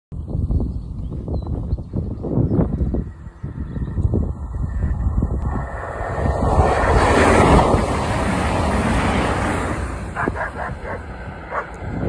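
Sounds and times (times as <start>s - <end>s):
train passing rumble: 2.8s - 12.0s.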